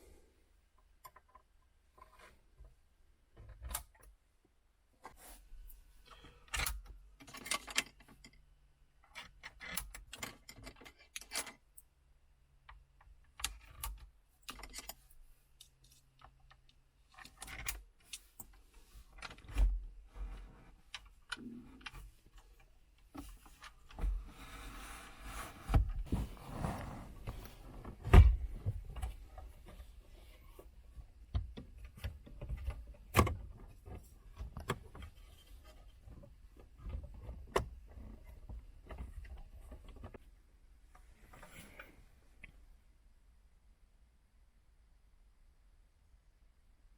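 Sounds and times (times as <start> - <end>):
rustling: 18.0 - 31.2.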